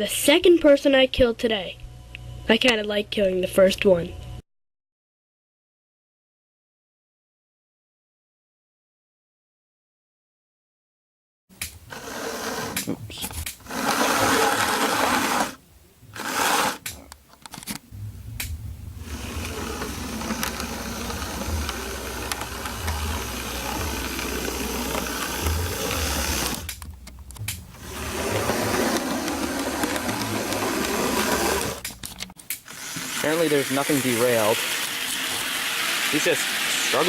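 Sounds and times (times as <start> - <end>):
model train electric motor buzzing: 11.9 - 16.9, 19.0 - 26.8, 27.7 - 31.9, 32.5 - 37.0
wheels rattling over rails: 13.6 - 16.9, 18.0 - 32.1.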